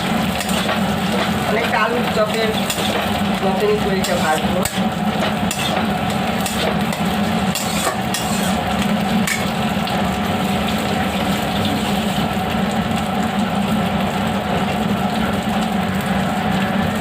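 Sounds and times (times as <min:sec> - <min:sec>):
food sizzling in a pan: 0:00.0 - 0:17.0
spatula scraping a pan: 0:04.0 - 0:08.7.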